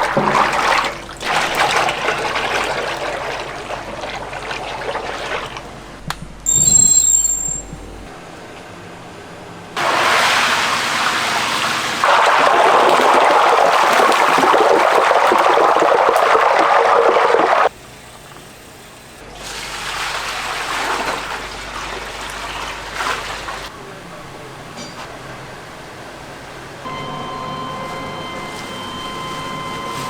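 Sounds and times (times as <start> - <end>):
running water splashing: 0.0 - 5.9, 9.8 - 17.7
short ringing clink: 6.5 - 7.8.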